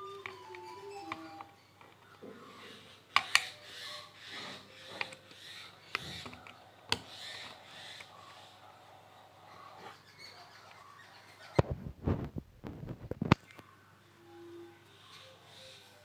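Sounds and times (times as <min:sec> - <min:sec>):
scratchy rubbing: 0:02.5 - 0:13.5
sharp handling clicks: 0:04.8 - 0:08.1.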